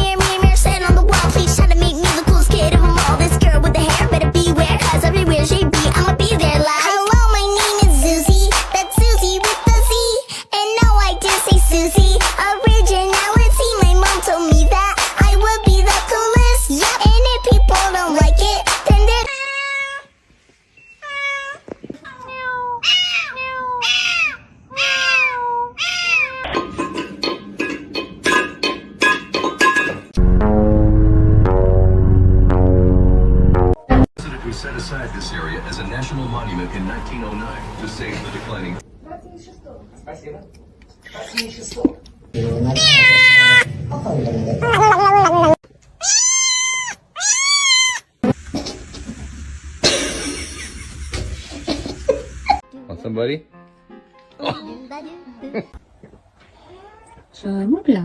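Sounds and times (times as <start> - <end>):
music with steady beat: 0.0 - 10.1, 10.8 - 19.3
cat meowing: 19.3 - 20.1, 21.0 - 26.5, 42.8 - 43.7, 46.0 - 48.2, 56.6 - 57.3.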